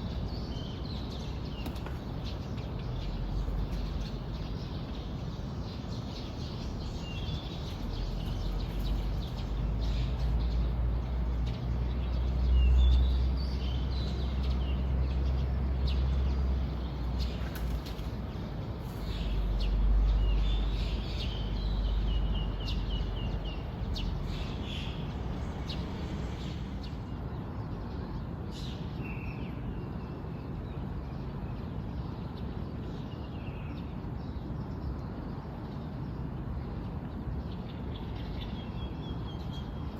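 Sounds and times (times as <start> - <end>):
birds chirping and calling: 0.0 - 27.1.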